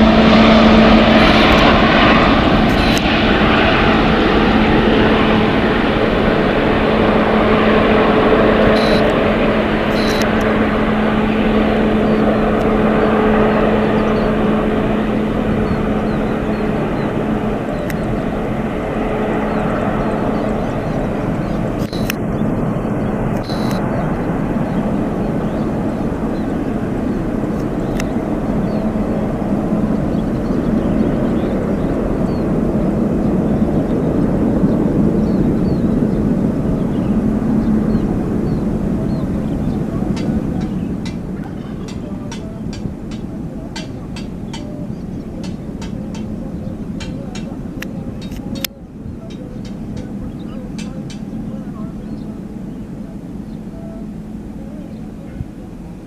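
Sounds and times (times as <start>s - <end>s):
jet engines running: 0.0s - 56.0s.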